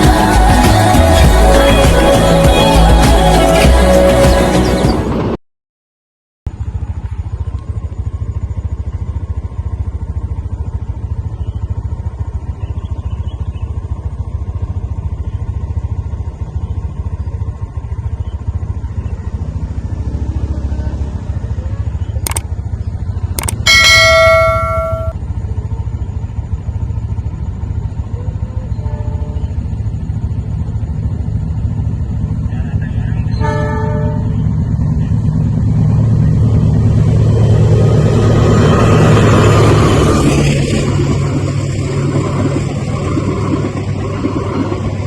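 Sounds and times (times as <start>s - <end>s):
loud bell-like ringing tone: 23.4s - 25.2s.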